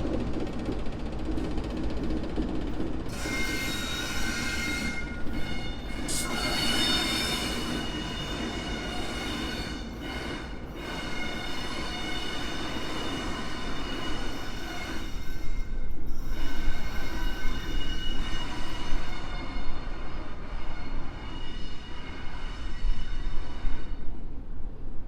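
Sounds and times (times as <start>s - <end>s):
steady high-pitched tones: 3.7s - 14.3s.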